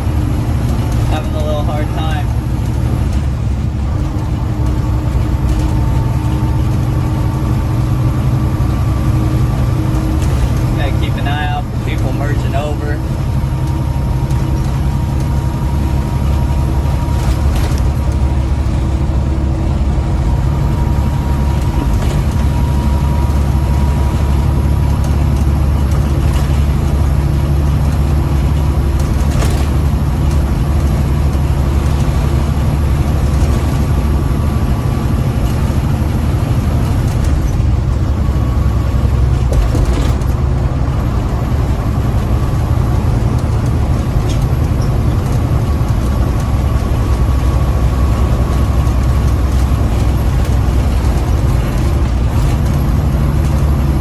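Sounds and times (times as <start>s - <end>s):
road noise: 0.0s - 54.0s
truck diesel engine droning: 0.0s - 54.0s.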